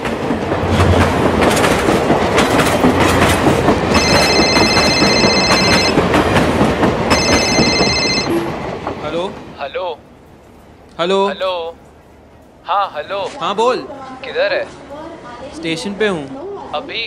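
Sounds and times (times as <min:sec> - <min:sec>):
train wheels clattering: 0:00.0 - 0:09.5.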